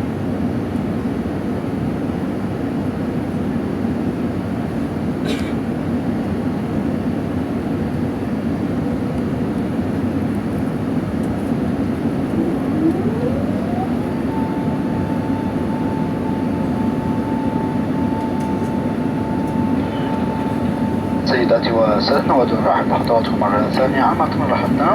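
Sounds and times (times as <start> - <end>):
airliner cabin engine noise: 0.0 - 24.9
rising whine: 11.0 - 24.9.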